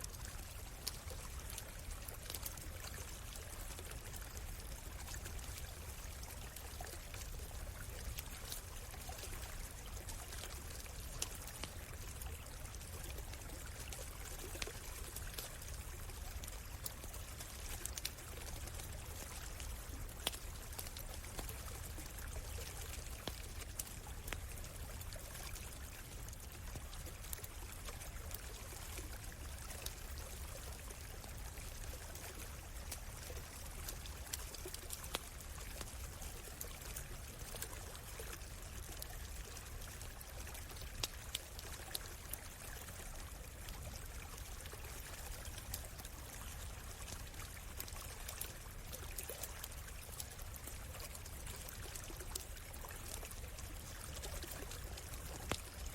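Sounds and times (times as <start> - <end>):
campfire crackling: 0.0 - 55.9
stream trickling: 0.0 - 55.9.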